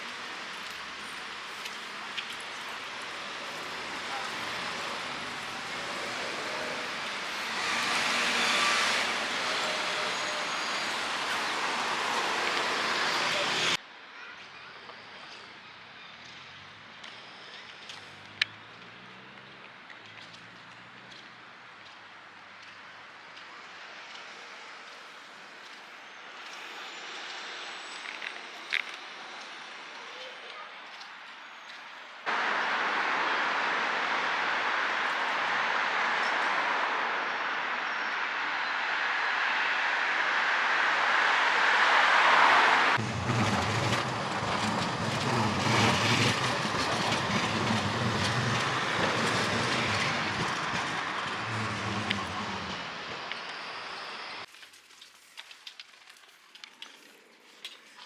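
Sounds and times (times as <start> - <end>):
rail vehicle motor drone: 0.0 - 13.8, 39.0 - 54.5
traffic hiss: 0.0 - 15.9, 22.0 - 57.5
faint high whistle: 8.3 - 15.4
rolling noise: 40.9 - 57.9.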